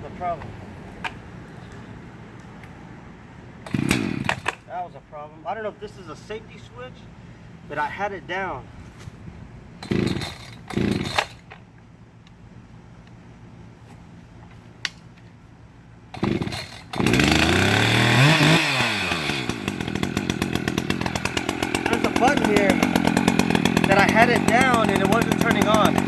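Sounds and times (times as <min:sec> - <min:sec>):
chainsaw engine revving and idling: 0:03.6 - 0:04.6, 0:09.8 - 0:11.4, 0:16.2 - 0:26.0
chainsaw recoil starter pulls: 0:03.7 - 0:04.7, 0:09.8 - 0:11.6, 0:16.2 - 0:26.0.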